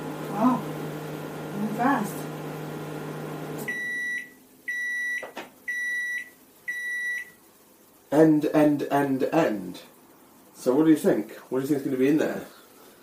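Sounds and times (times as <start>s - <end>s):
microwave oven humming: 0.0s - 7.4s
high microwave beeps: 3.6s - 7.4s.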